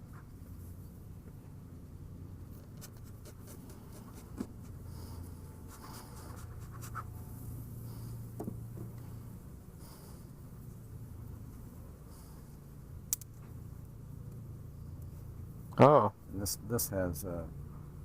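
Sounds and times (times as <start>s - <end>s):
low steady hum: 0.0s - 18.0s
scratchy rubbing: 2.6s - 4.8s, 5.7s - 7.1s.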